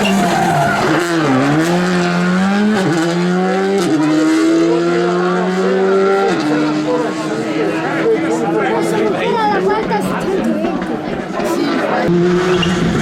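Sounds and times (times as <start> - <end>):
rally car engine accelerating: 0.0 - 13.0.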